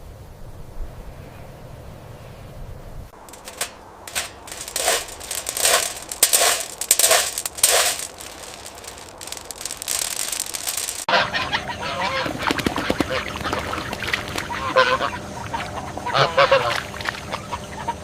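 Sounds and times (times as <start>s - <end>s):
crunching and crackling: 3.2s - 11.1s.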